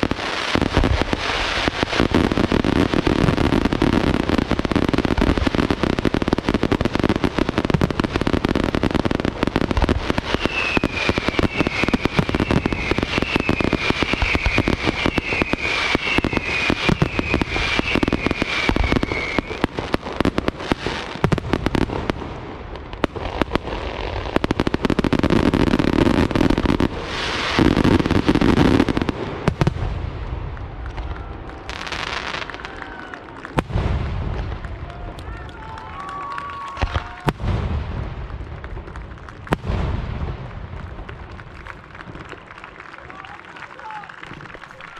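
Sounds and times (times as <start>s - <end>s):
firework bangs and crackles: 0.0s - 44.9s
falling firework whistles: 10.1s - 19.8s.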